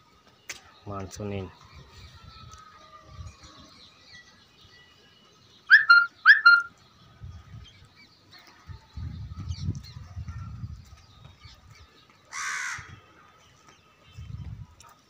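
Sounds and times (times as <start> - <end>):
bird calling loudly: 5.7 - 6.7.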